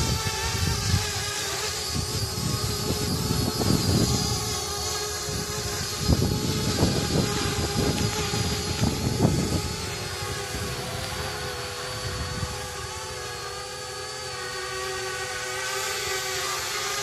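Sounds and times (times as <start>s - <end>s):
wind buffeting microphone: 0.0s - 13.3s
drone propellers whining: 0.0s - 17.0s.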